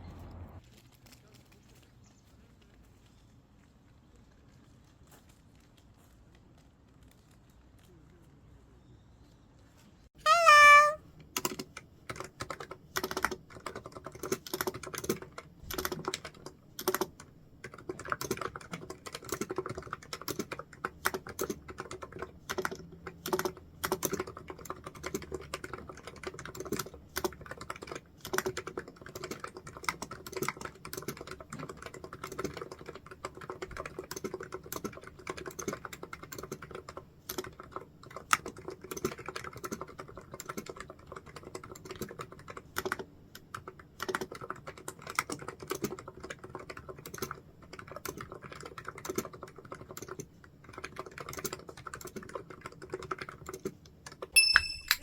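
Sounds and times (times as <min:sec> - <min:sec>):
computer keyboard typing: 0:10.3 - 0:55.0.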